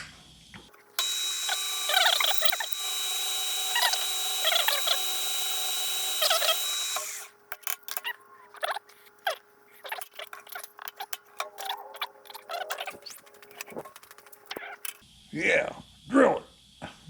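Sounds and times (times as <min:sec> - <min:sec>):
electric drill whining: 0:00.9 - 0:07.4
drill bit squealing in steel: 0:01.0 - 0:07.3.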